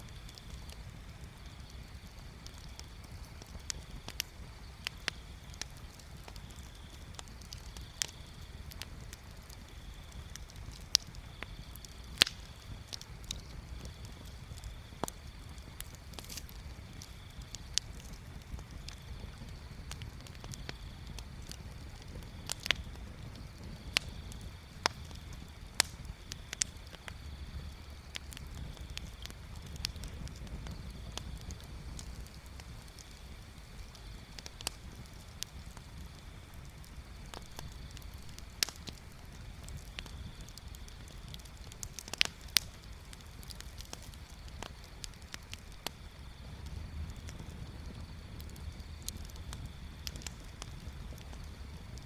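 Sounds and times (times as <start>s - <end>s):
low fire rumble: 0.0s - 52.0s
sharp fire pops: 0.0s - 52.0s
wood bonfire crackling: 0.0s - 52.0s.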